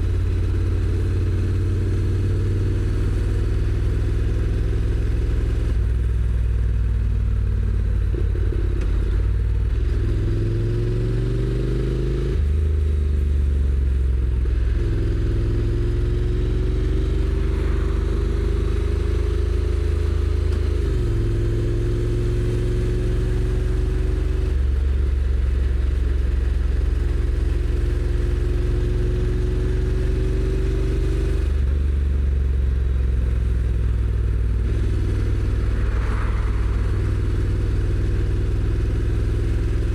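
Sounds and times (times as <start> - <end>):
motorcycle engine accelerating: 14.2 - 39.9.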